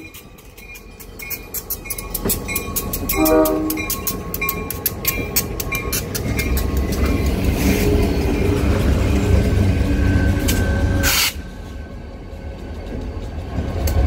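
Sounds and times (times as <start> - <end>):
level-crossing bell dinging: 0.0 - 6.8
locomotive engine rumble: 0.0 - 14.0
train horn blast: 3.1 - 4.0.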